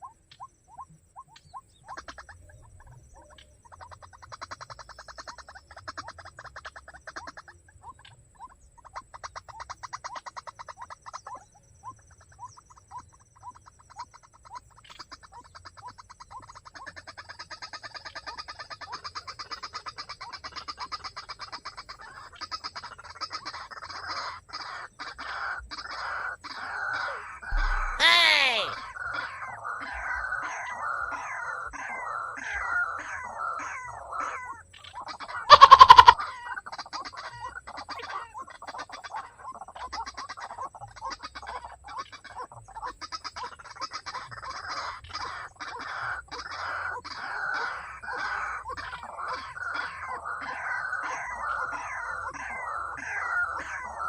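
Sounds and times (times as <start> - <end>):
waterhens calling: 21.9 - 54.0
bird calling harsh notes: 27.5 - 28.8, 35.5 - 36.2.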